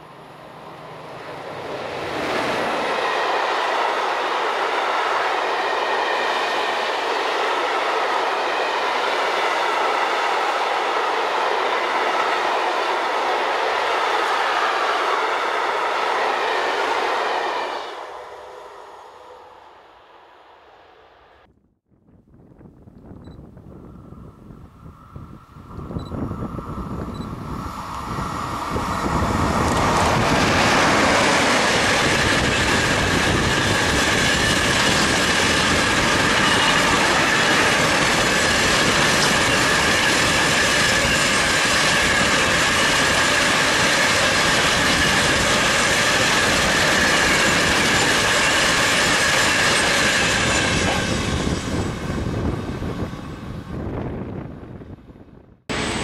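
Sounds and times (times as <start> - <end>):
freight train passing: 0.0 - 21.5, 23.2 - 56.0
high whine: 55.7 - 56.0.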